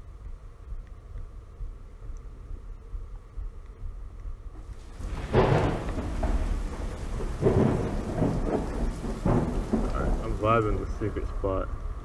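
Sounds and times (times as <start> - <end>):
rain and wind hiss on camera: 4.5 - 12.0.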